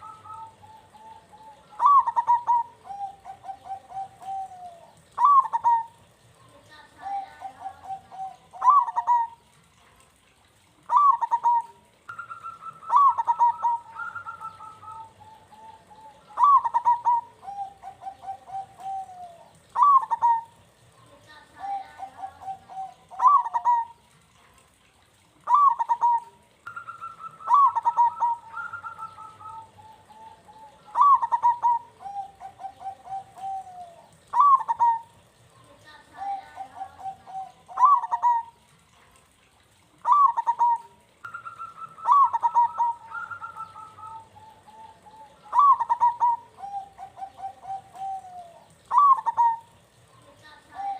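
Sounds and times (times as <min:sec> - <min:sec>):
dove cooing: 0:00.0 - 0:09.8, 0:10.8 - 0:24.6, 0:25.3 - 0:50.9.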